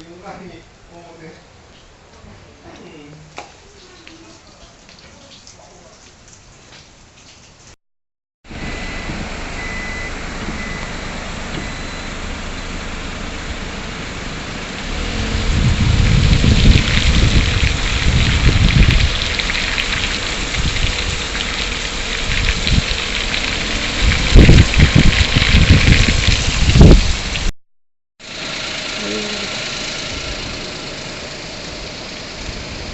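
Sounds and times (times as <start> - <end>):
water rushing: 8.5 - 27.5
wind buffeting microphone: 14.9 - 27.5.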